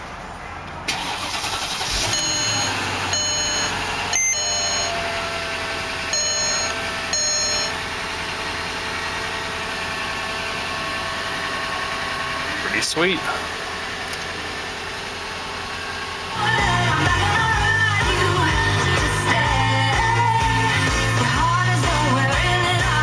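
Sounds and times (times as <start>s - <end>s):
car engine idling: 0.0s - 23.0s
short electronic beeps: 2.0s - 5.2s, 6.1s - 7.8s.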